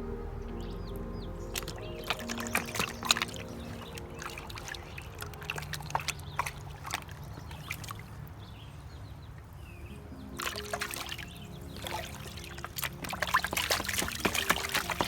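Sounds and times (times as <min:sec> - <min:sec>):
small splashes and clicks: 0:01.5 - 0:09.5, 0:10.4 - 0:15.0
water sloshing in a pan: 0:01.6 - 0:08.4, 0:10.4 - 0:15.0.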